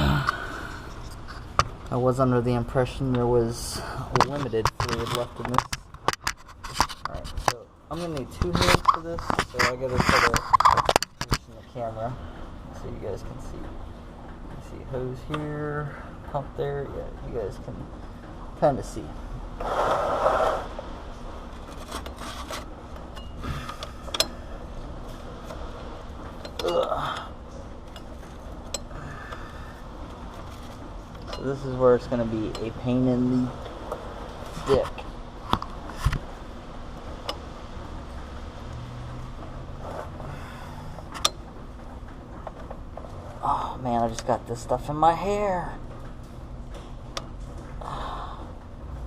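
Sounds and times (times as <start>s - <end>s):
low background hum: 0.0s - 49.0s
rubbing and scraping: 4.2s - 11.6s, 19.6s - 20.8s, 21.5s - 22.8s, 39.8s - 40.2s.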